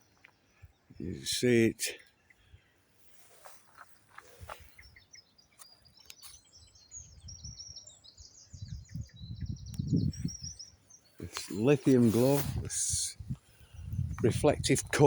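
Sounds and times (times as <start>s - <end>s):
songbird chirping: 0.0s - 15.0s
low rumbling on microphone: 12.0s - 15.0s.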